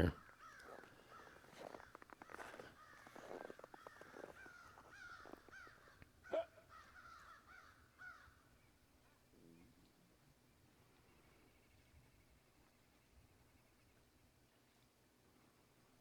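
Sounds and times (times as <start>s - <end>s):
faint bird calls: 0.0s - 8.8s.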